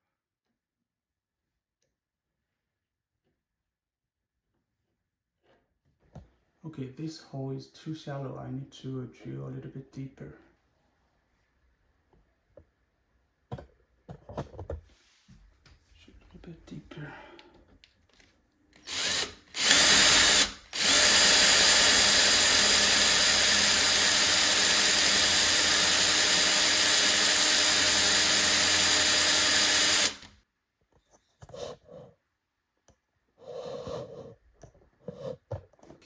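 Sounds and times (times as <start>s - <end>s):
power drill drilling wood: 18.8s - 30.4s.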